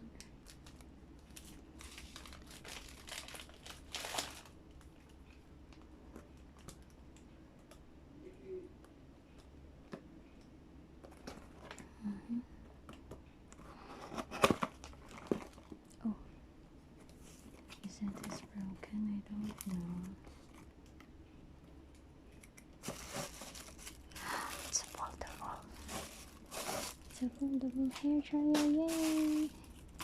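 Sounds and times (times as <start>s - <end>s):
plastic packaging crinkling: 0.2s - 4.8s, 14.1s - 16.0s, 22.8s - 30.0s.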